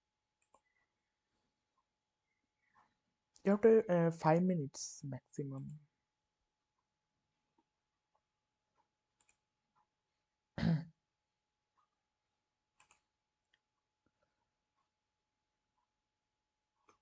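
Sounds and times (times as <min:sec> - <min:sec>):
faint clicks: 0:00.4 - 0:00.7, 0:08.8 - 0:09.4, 0:12.8 - 0:13.6
person clearing throat: 0:10.6 - 0:11.0.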